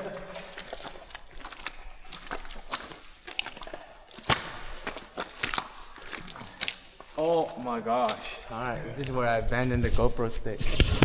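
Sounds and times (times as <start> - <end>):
footsteps squelching in mud: 0.0 - 11.0.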